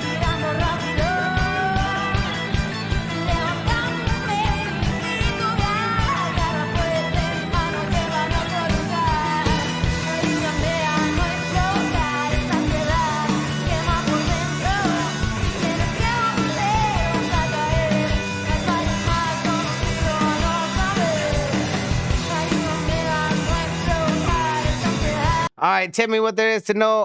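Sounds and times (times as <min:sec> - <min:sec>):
rock band playing live: 0:00.0 - 0:25.5
bass: 0:00.0 - 0:27.0.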